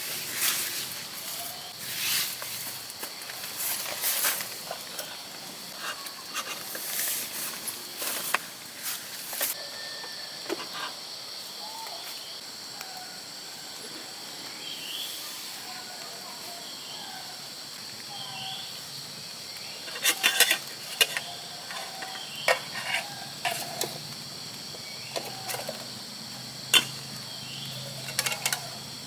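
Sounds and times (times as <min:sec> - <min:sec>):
rustling and scuffing: 0:00.0 - 0:09.6
insects trilling: 0:00.0 - 0:29.0
birds chirping: 0:17.9 - 0:29.0.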